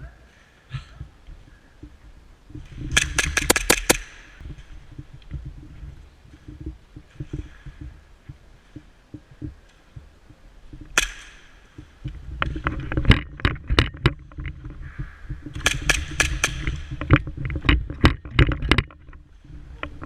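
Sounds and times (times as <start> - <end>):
airsoft guns firing: 3.0 - 4.2.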